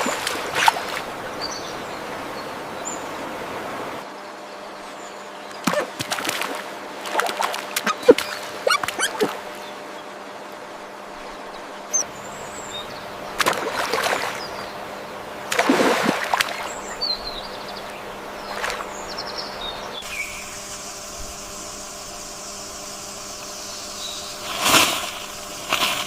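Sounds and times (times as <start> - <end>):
high bird chirps: 7.8 - 9.3
background hiss: 14.8 - 26.0.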